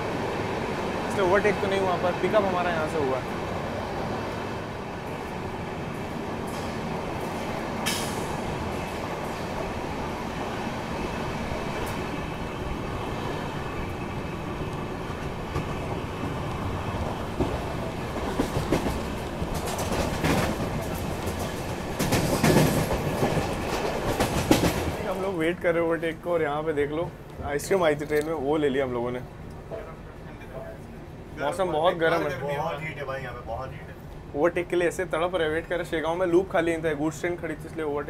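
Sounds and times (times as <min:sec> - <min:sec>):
train wheels rumbling on track: 0:00.0 - 0:38.0
wheel clacks over rail joints: 0:17.4 - 0:25.2.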